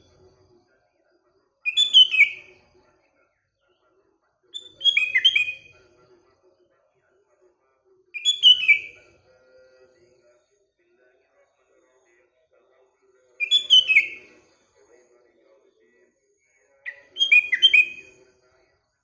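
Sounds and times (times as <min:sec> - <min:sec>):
bird singing whistled phrases: 0:01.7 - 0:02.5, 0:04.6 - 0:05.7, 0:08.2 - 0:09.0, 0:13.4 - 0:14.2, 0:16.9 - 0:18.2.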